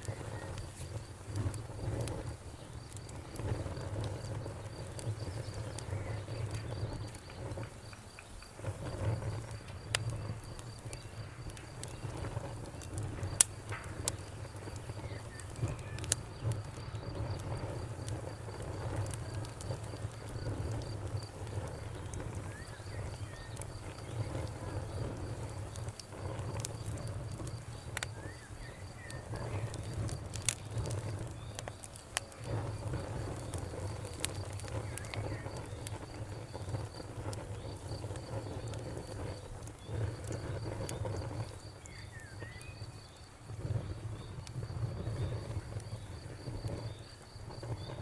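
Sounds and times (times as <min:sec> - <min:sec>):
crickets chirping: 0:00.0 - 0:48.0
wood fire crackling: 0:00.0 - 0:48.0
faint bird chirps: 0:15.0 - 0:17.2, 0:28.1 - 0:30.0, 0:41.7 - 0:44.4.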